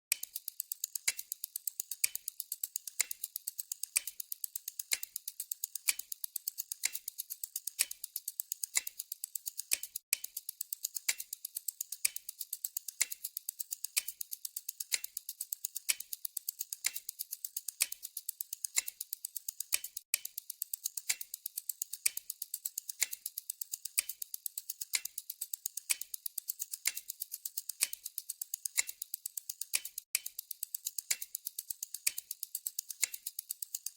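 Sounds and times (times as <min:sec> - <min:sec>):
clock ticking: 0:00.1 - 0:33.9.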